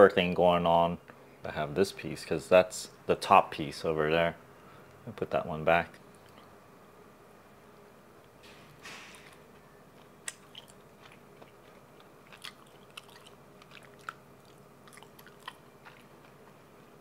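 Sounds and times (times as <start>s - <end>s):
person chewing ham: 9.2s - 17.0s
wet mouth clicks and lip smacks: 10.2s - 10.8s, 12.4s - 16.0s.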